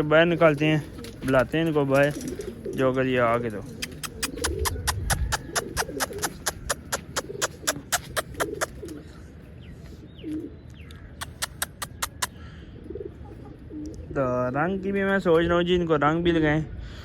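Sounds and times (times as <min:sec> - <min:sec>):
pigeons cooing: 0:00.0 - 0:14.5
sharp clicks: 0:03.8 - 0:09.0, 0:10.9 - 0:12.3.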